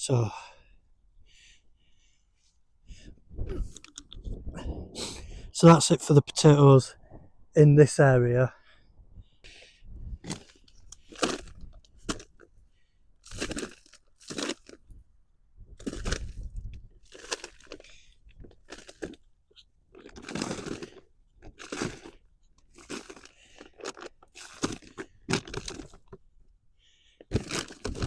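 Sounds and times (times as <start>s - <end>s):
dry plants crunching and rustling: 10.2s - 12.5s, 13.2s - 14.9s, 15.8s - 19.2s, 20.0s - 26.2s, 27.3s - 28.0s.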